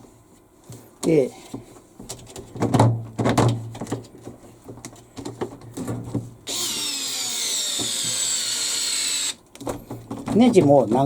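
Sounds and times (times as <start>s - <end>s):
cordless power driver running: 6.5s - 9.4s
screws and parts clicking: 6.5s - 9.4s.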